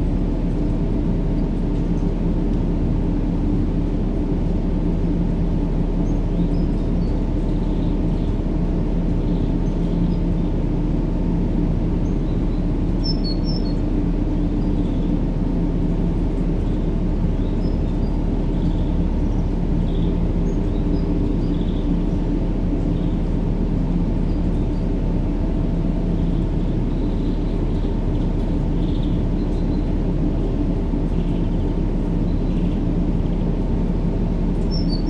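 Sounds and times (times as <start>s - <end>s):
faint bird chirps: 12.0s - 13.8s, 34.6s - 35.0s.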